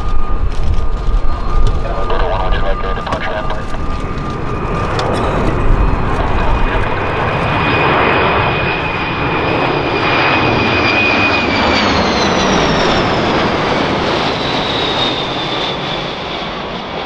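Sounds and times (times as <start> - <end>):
high jet engine whine: 0.0 - 17.0
jet aircraft flying past: 0.0 - 17.0.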